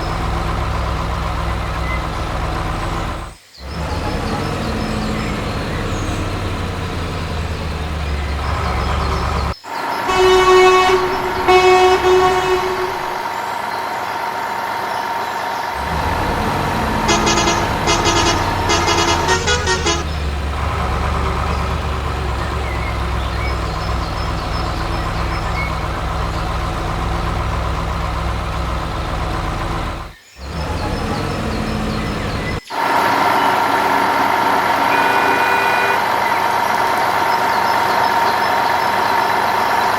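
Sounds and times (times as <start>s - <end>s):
heavy truck engine running: 0.0s - 39.9s
truck horn honks: 3.8s - 13.4s, 15.8s - 22.2s, 33.4s - 37.0s
short horn toots: 10.1s - 13.4s, 16.7s - 20.2s, 34.8s - 36.4s.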